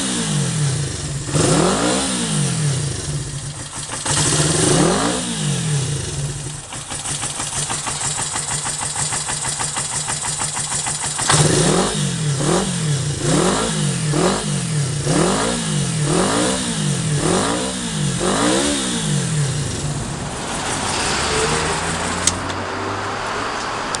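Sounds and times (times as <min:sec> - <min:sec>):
motorcycle engine idling and revving: 0:00.0 - 0:24.0
sharp click: 0:22.2 - 0:22.6.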